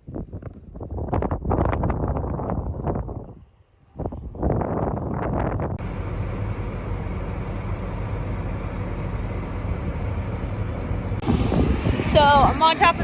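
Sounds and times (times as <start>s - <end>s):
tractor engine running: 5.8s - 13.0s.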